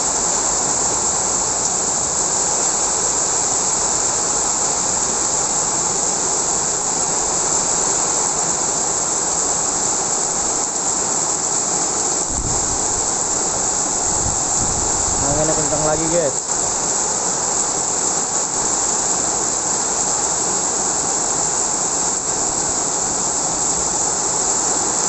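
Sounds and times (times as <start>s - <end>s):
heavy rain pouring: 0.0s - 25.0s
low rumble of wind gust: 12.2s - 16.1s.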